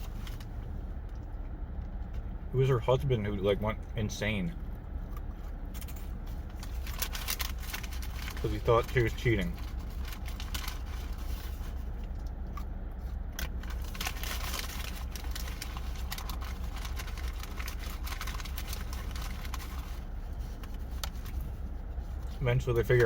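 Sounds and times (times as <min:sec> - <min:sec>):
low hum: 0:00.0 - 0:23.0
paper packaging crinkling: 0:06.0 - 0:12.2, 0:13.4 - 0:23.0.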